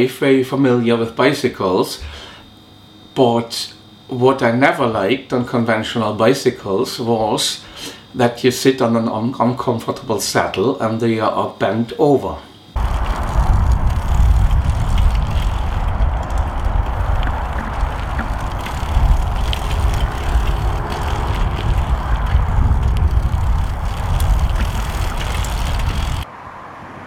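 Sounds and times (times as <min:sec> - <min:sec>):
wind on microphone: 0:12.8 - 0:26.2
road noise: 0:12.8 - 0:27.0.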